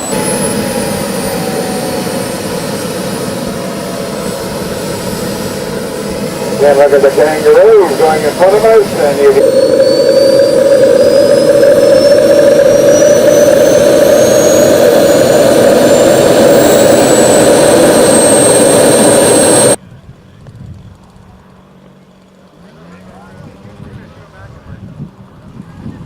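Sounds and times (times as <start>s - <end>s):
jet turbine engine whining: 0.0s - 19.8s.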